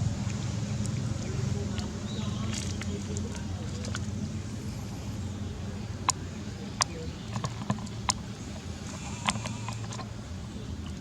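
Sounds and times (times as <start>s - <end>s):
steady low hum: 0.0s - 11.0s
sharp clicks and knocks: 6.8s - 8.3s.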